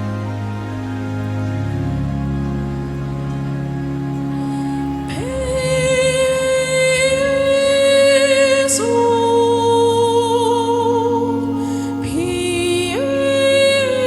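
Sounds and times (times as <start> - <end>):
boy singing with vibrato: 5.1 - 14.0.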